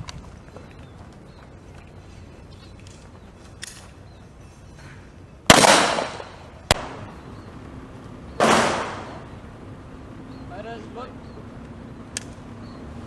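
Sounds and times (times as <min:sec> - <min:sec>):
pistol shots echoing: 0:05.5 - 0:07.2, 0:08.4 - 0:09.3.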